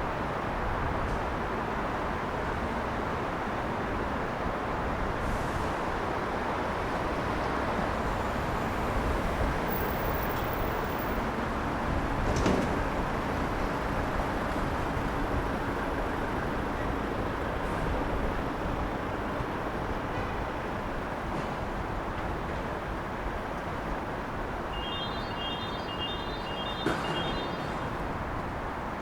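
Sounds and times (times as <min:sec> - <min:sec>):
traffic tyres hissing on wet road: 0:00.1 - 0:24.6.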